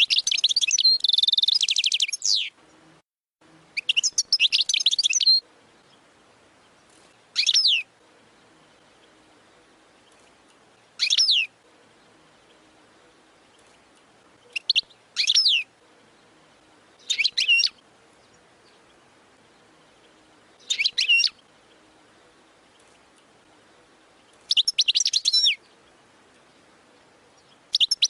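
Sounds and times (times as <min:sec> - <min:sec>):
goldfinch twittering: 0:00.0 - 0:02.5, 0:03.7 - 0:28.0.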